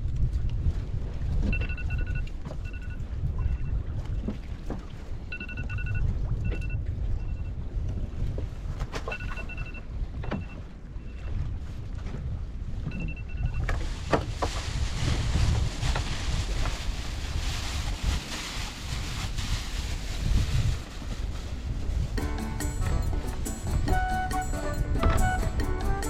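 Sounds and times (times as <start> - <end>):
rushing wind and water: 0.0 - 26.0
wind buffeting microphone: 11.3 - 26.0
boat engine rumbling: 22.2 - 26.0.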